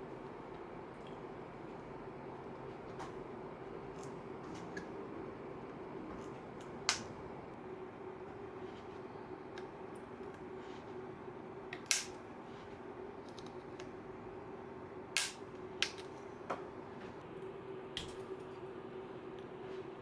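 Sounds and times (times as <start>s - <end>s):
steady low hum: 0.0s - 20.0s
sharp clicks or snaps: 11.8s - 12.2s, 15.2s - 16.0s.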